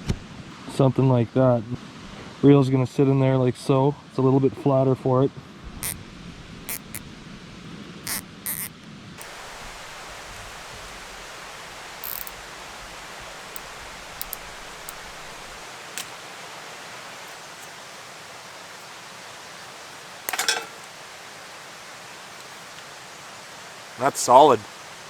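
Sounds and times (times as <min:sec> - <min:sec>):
creek rushing: 0:08.0 - 0:25.0
handling clicks and crackle: 0:11.9 - 0:16.2.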